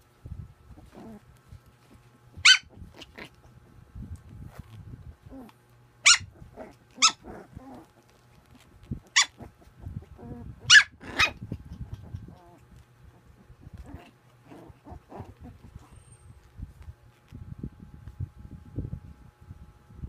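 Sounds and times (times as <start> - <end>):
puppy growls and whimpers: 0.7 - 3.7, 4.5 - 17.2
puppy yipping: 2.4 - 2.8, 6.0 - 6.4, 7.0 - 7.3, 9.1 - 9.5, 10.6 - 11.4.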